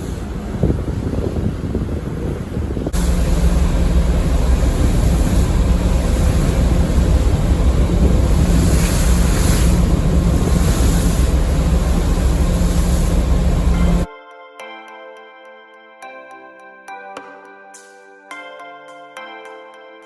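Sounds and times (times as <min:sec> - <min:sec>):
ship engine drone: 0:00.0 - 0:14.1
water rushing along hull: 0:00.0 - 0:14.1
wind buffeting microphone: 0:00.0 - 0:14.1.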